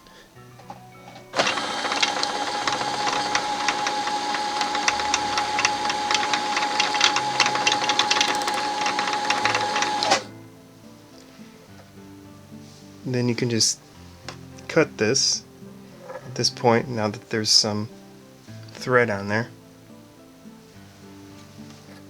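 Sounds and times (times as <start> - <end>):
sewing machine motor whining: 1.3 - 10.3.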